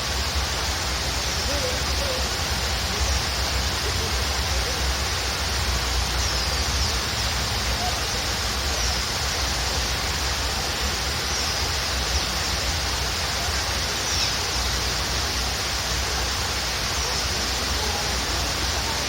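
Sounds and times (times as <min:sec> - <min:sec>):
waterfall rushing: 0:00.0 - 0:19.0
faint bird chirps: 0:13.5 - 0:14.7.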